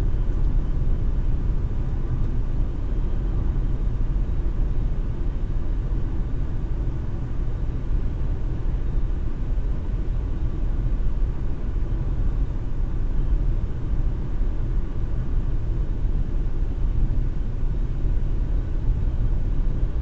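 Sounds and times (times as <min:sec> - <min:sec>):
car cabin road and engine noise: 0:00.0 - 0:20.0.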